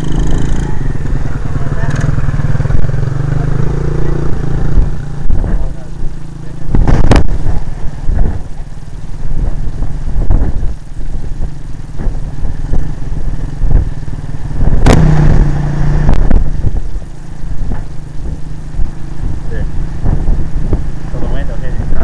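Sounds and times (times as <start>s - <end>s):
dirt bike engine running: 0.0s - 22.0s
heavy low rumble: 0.0s - 22.0s.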